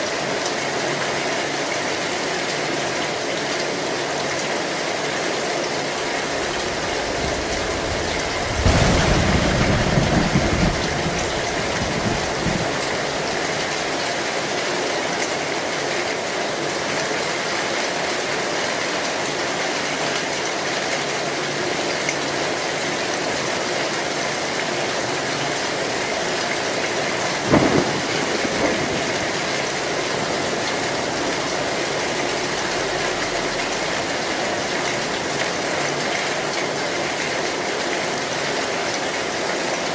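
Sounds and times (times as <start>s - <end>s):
heavy rain on metal roof: 0.0s - 39.9s
thunder rumble: 6.0s - 13.9s, 27.1s - 35.1s
thunder crack: 6.1s - 13.7s, 27.4s - 34.3s.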